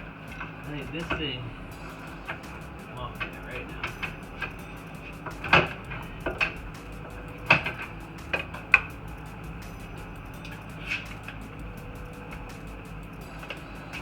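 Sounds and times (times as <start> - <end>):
metal tools clanking: 0.0 - 14.0.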